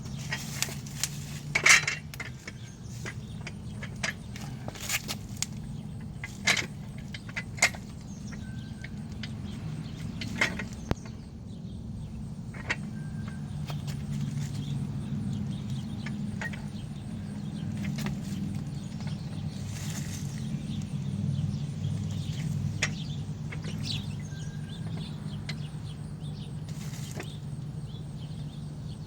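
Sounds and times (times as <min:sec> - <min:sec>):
steady low hum: 0:00.0 - 0:29.0
metal stand clicks and clinks: 0:00.1 - 0:11.2, 0:12.5 - 0:21.1, 0:21.9 - 0:25.8.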